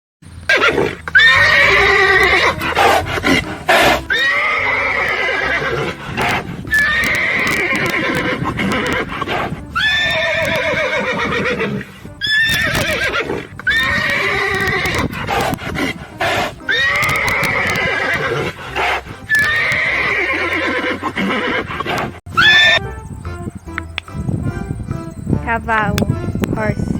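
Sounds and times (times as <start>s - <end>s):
horse whinnying: 0.5s - 22.9s.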